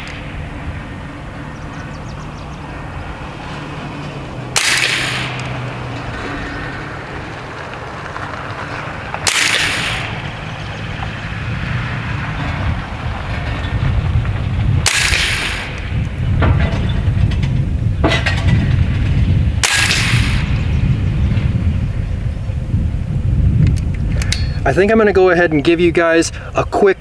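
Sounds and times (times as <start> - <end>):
air rifle shots: 0.0 - 1.4, 4.5 - 6.8, 9.1 - 11.2, 14.7 - 16.2, 18.0 - 21.1
steady low rumble: 0.0 - 27.0.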